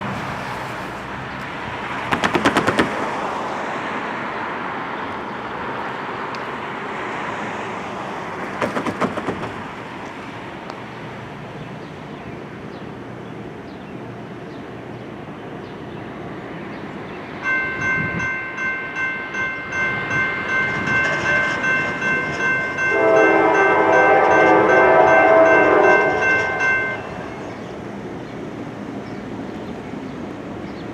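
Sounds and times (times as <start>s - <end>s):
rapid clicking: 2.1s - 3.2s
grade-crossing bell ringing: 17.4s - 27.9s
locomotive air horn chord: 22.8s - 27.4s.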